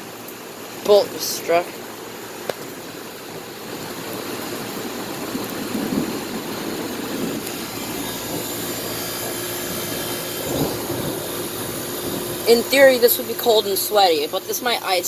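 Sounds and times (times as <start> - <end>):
air conditioner unit running: 0.0 - 15.0
heavy rain: 0.0 - 15.0.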